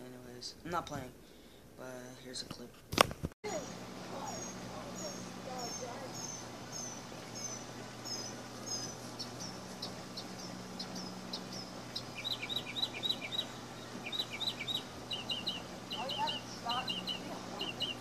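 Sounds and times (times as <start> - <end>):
songbirds chirping: 3.5 - 18.0.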